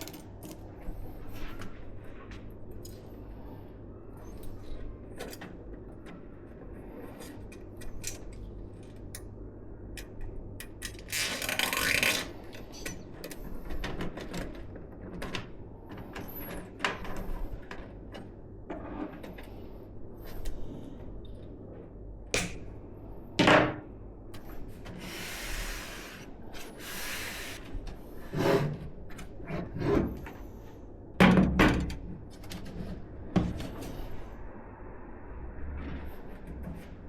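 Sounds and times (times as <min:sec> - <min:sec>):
low hum: 0:32.8 - 0:37.0.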